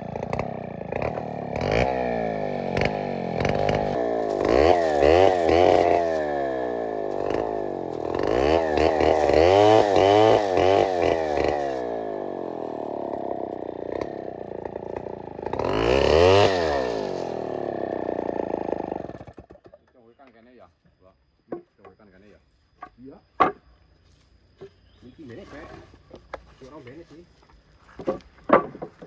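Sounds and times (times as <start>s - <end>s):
chainsaw engine revving: 0.0s - 19.6s.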